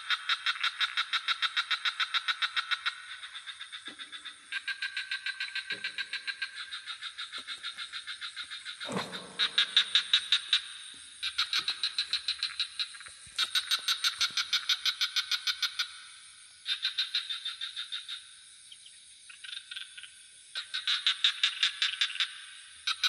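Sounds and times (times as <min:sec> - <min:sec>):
frogs calling in pulsed trills: 0:00.0 - 0:08.3.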